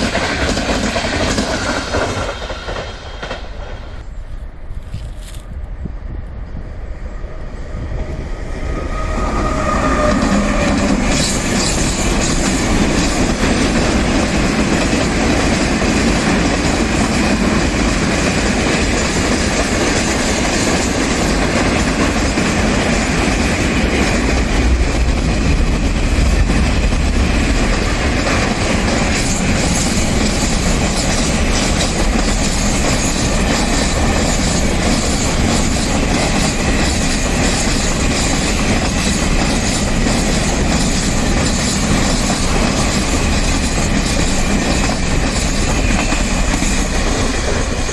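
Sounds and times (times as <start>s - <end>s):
train wheels clattering on rails: 0.0s - 5.2s, 9.2s - 47.9s.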